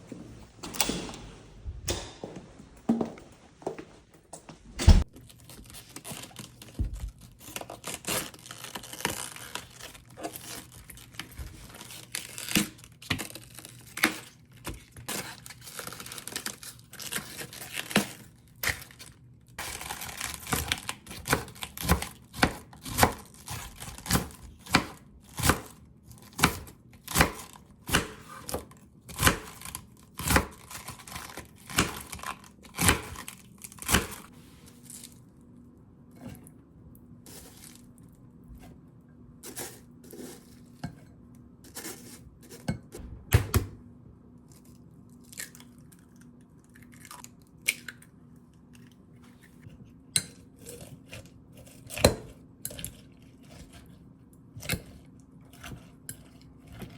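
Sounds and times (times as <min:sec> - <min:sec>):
crinkling and tearing: 0:05.1 - 0:21.9.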